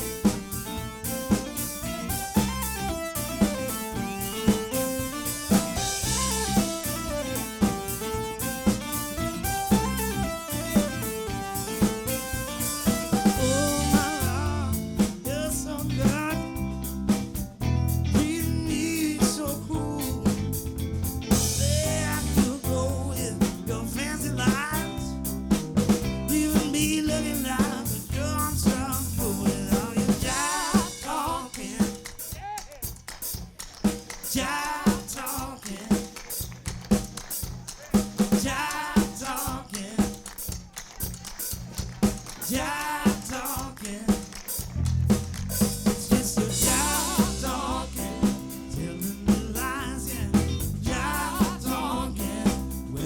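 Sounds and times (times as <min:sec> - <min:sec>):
heavy bass: 0:00.0 - 0:30.4, 0:44.7 - 0:53.0
soul band playing: 0:00.0 - 0:31.5, 0:44.4 - 0:53.0
drum kit beat: 0:00.0 - 0:53.0.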